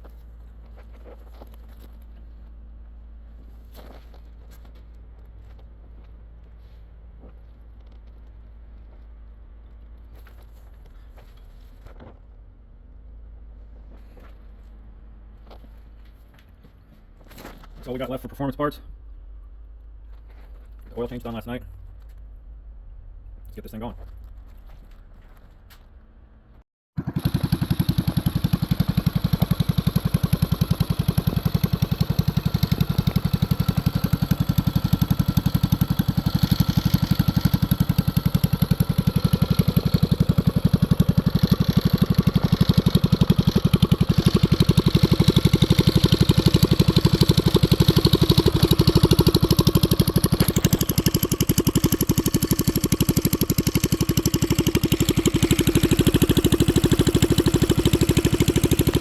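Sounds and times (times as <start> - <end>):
minibike engine idling: 27.0 - 59.0.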